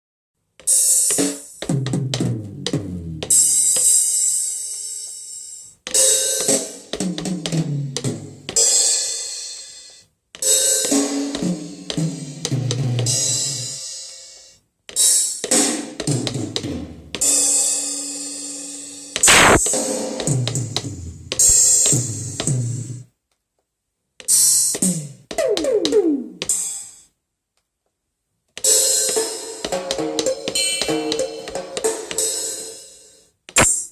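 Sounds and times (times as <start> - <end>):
electronic drum fill on toms: 0.6 - 4.2, 10.4 - 13.8, 15.0 - 17.6, 19.2 - 23.1.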